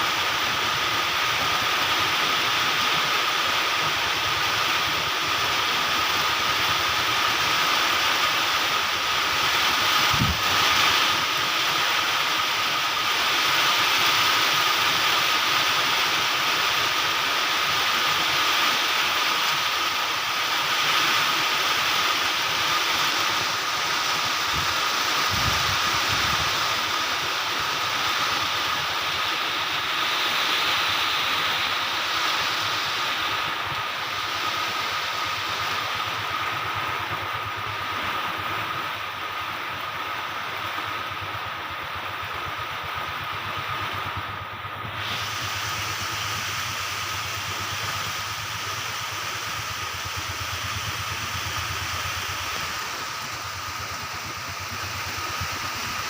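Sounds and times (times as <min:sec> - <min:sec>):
rain in strong wind: 0:00.0 - 0:56.0
wind gusts buffeting microphone: 0:09.2 - 0:11.6, 0:24.2 - 0:27.2.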